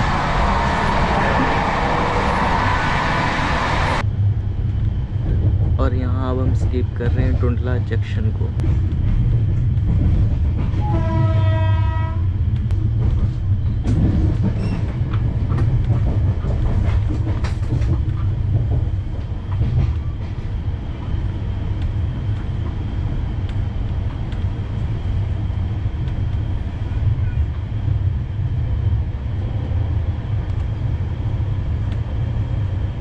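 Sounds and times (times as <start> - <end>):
train rumbling at speed: 0.0 - 33.0
train horn: 10.8 - 12.3.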